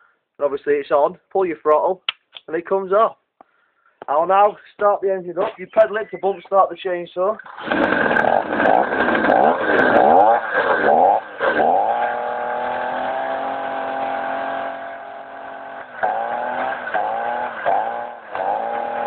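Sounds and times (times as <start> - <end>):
two-stroke engine revving: 7.4 - 19.0.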